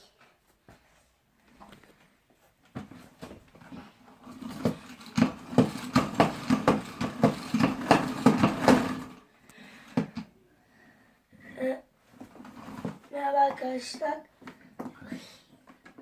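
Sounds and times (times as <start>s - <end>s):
plastic spin mop clacking: 3.6s - 9.2s
mop head spinning whir: 3.7s - 9.2s.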